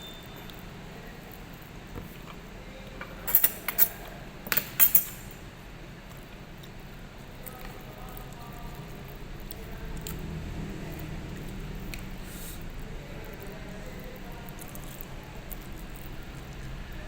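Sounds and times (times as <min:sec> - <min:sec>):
cutlery clinking on plate: 0:03.0 - 0:05.4.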